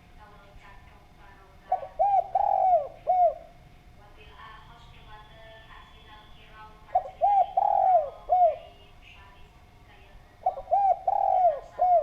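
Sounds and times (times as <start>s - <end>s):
dove cooing: 1.7s - 3.6s, 6.9s - 8.8s, 10.4s - 12.0s.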